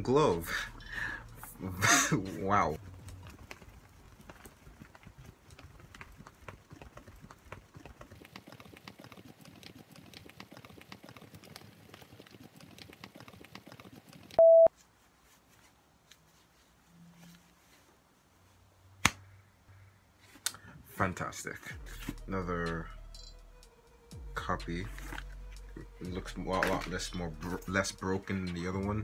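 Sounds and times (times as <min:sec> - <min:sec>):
rustling and clicks of items handled: 0:00.1 - 0:18.0, 0:24.6 - 0:29.0
short loud beep: 0:14.4 - 0:14.7.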